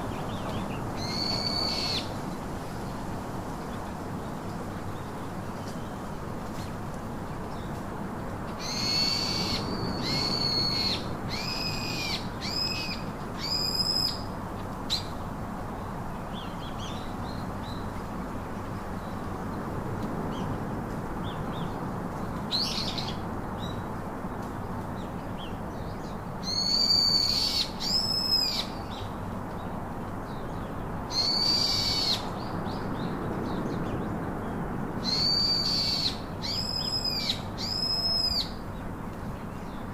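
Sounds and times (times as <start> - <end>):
outdoor ambience hiss: 0.0 - 39.9
bird whistled calls: 1.0 - 2.0, 8.6 - 14.2, 26.4 - 28.7, 31.1 - 32.2, 35.0 - 38.6.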